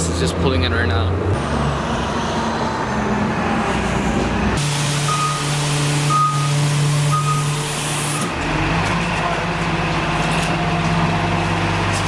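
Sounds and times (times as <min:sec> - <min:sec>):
bus engine running: 0:00.0 - 0:12.0
short high beeps: 0:05.1 - 0:05.4, 0:06.1 - 0:07.6.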